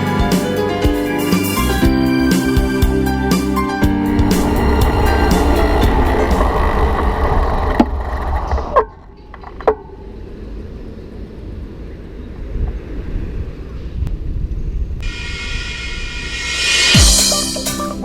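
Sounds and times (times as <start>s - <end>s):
background music: 0.0s - 7.4s, 15.0s - 18.0s
road traffic noise: 3.0s - 8.4s
wind rumble: 3.9s - 8.4s.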